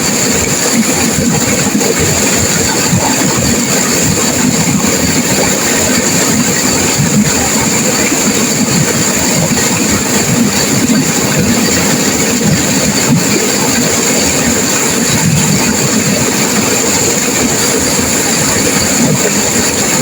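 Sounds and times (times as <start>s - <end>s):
river rushing through rapids: 0.0s - 20.0s.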